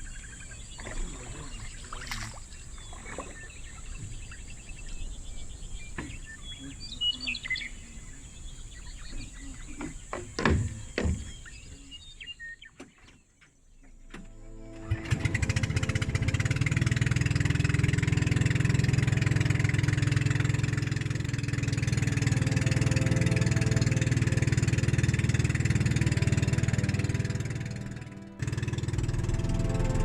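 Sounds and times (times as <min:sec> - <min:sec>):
birds chirping: 0:00.0 - 0:30.0
knocks: 0:09.8 - 0:11.5
engine starting: 0:14.1 - 0:22.2
high-pitched drone: 0:14.3 - 0:30.0.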